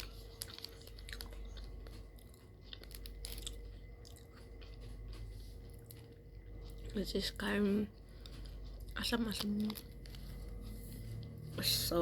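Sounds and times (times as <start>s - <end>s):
crisp wafer crunches: 0.0s - 7.0s
person chewing chocolate wafer: 0.0s - 11.8s.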